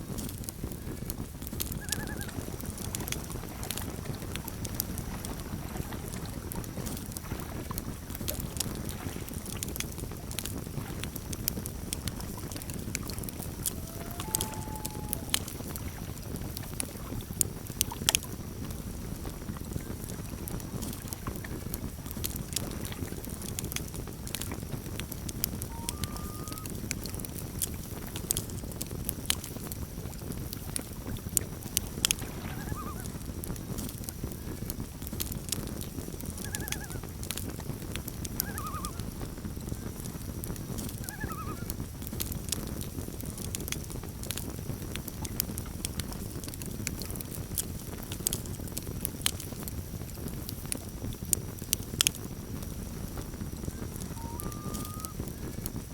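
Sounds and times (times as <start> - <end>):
campfire crackling and popping: 0.0 - 55.9
loon calls: 1.8 - 2.4, 13.4 - 15.9, 25.6 - 26.7, 32.4 - 33.1, 36.4 - 37.1, 38.4 - 39.1, 41.0 - 41.7, 54.1 - 55.2.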